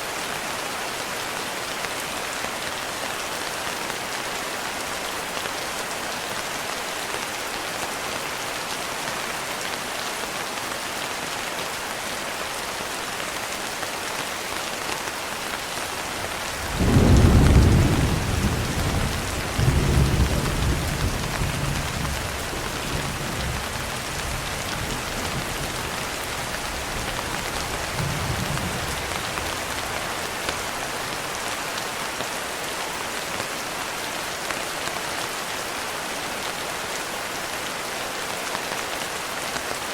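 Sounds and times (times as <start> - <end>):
rain falling on a window: 0.1 - 39.9
thunder rumbling: 16.6 - 25.9.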